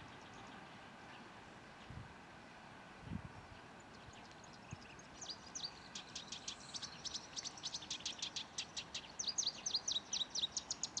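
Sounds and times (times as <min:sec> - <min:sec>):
small bird chirping: 0:03.5 - 0:11.0.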